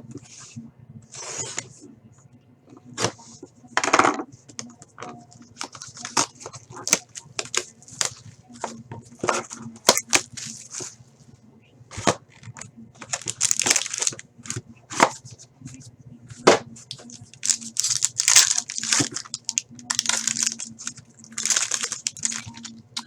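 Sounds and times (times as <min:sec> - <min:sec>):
packaging tearing and crinkling: 0:05.5 - 0:08.2, 0:09.9 - 0:10.9, 0:13.0 - 0:14.6, 0:16.9 - 0:23.0.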